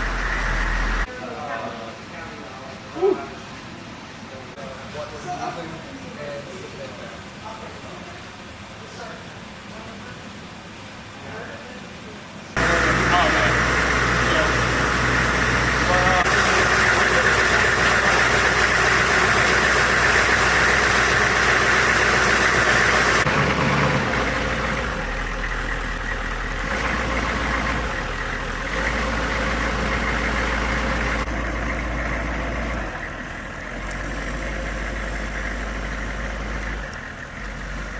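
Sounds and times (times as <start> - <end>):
engine running: 0.0 - 1.1, 12.6 - 37.9.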